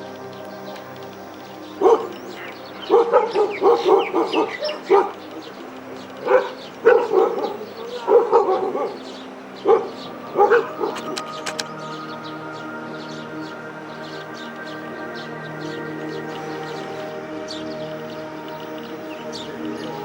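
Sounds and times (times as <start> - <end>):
dog barking: 1.8 - 2.1, 2.9 - 5.2, 6.2 - 9.0, 9.6 - 11.0.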